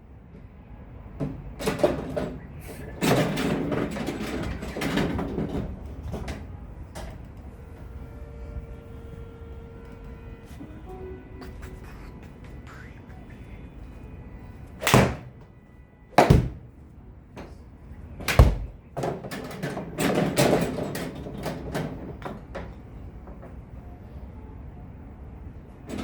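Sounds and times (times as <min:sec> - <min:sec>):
sharp impacts: 0:14.8 - 0:15.4, 0:16.2 - 0:16.7.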